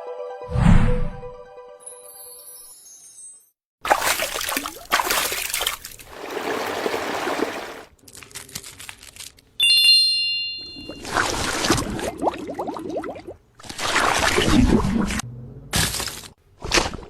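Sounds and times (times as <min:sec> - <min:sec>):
water splashing and pouring: 0:03.8 - 0:08.0, 0:10.8 - 0:15.2
running water rushing: 0:03.9 - 0:07.9
bright chime: 0:09.6 - 0:11.0.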